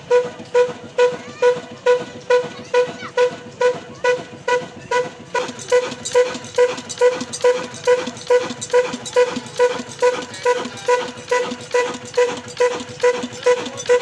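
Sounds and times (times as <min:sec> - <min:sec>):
diesel engine exhaust popping: 0:00.0 - 0:14.0.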